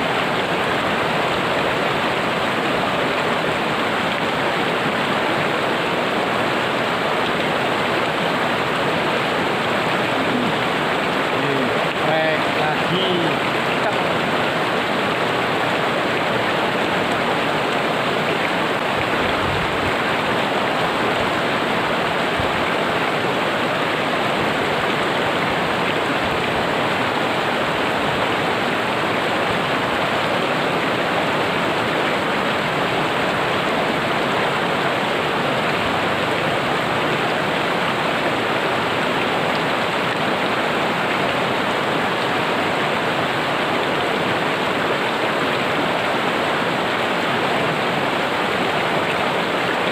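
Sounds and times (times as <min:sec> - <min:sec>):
river rushing over rocks: 0:00.0 - 0:49.9.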